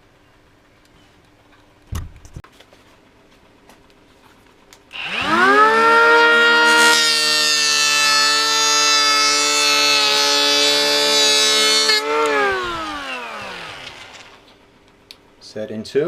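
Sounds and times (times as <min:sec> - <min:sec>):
cordless planer whining: 0:04.9 - 0:14.6.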